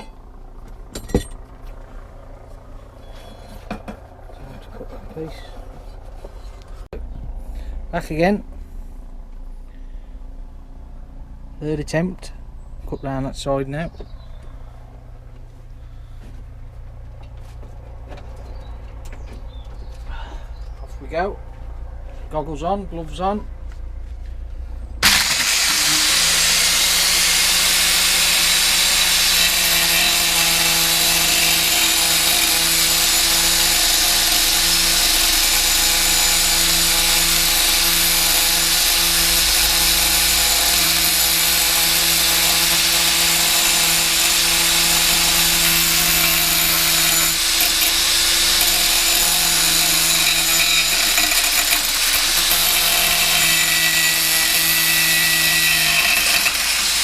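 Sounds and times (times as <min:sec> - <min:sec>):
angle grinder cutting steel: 0:25.0 - 0:57.0.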